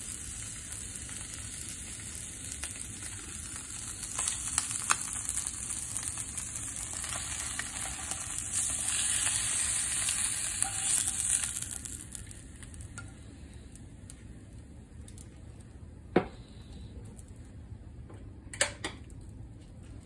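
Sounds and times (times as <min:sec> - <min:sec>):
food sizzling in a frying pan: 0:00.0 - 0:13.5.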